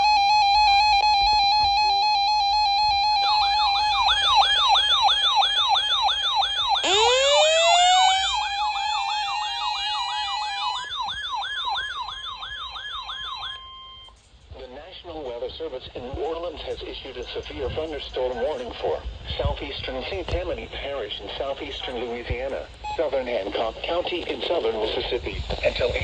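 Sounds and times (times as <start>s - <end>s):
electronic siren sweeping up and down: 0.0s - 14.0s
siren winding up: 0.0s - 14.2s
wavering emergency alert tone: 0.0s - 14.2s.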